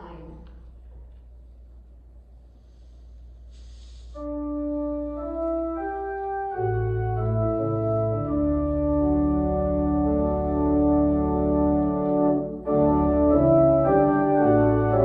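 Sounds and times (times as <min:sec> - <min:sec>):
brief hiss: 0:03.4 - 0:04.3
organ playing hymn chords: 0:04.2 - 0:15.0.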